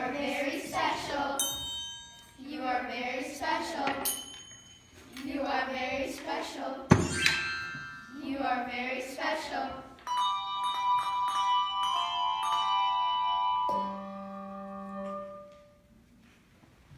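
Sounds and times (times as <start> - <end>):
struck bell notes ringing: 1.4 - 2.4, 6.9 - 8.5, 10.1 - 14.4.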